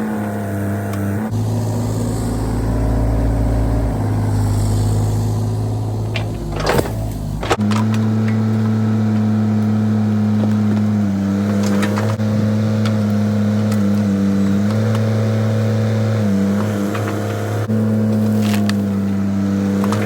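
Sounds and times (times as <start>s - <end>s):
excavator diesel engine running: 0.0s - 20.0s
digging knocks: 0.8s - 15.8s.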